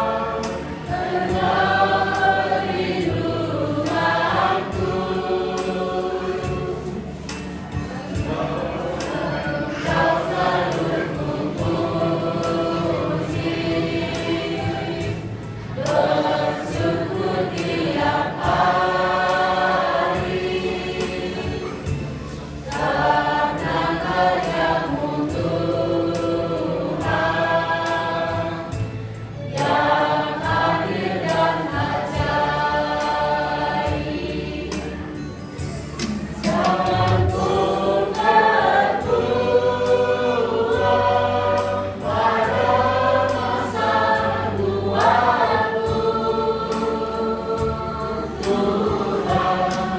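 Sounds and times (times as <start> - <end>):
choir singing a hymn: 0.0 - 49.9.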